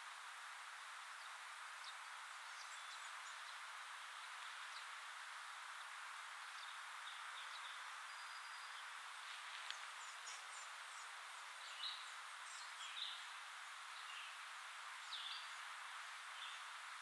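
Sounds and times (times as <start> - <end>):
woodland background hiss: 0.0 - 17.0
faint bird chirps: 1.2 - 5.0, 6.5 - 9.0.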